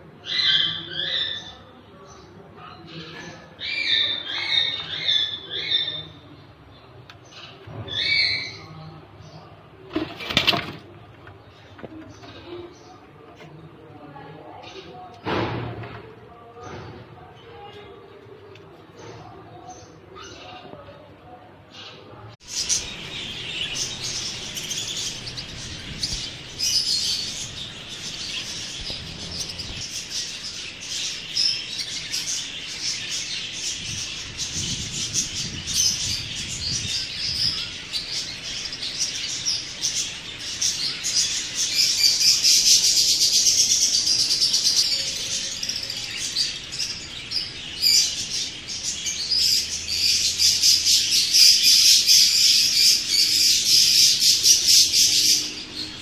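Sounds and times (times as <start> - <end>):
parrots chirping and chattering: 0.1 - 9.4, 21.7 - 56.0.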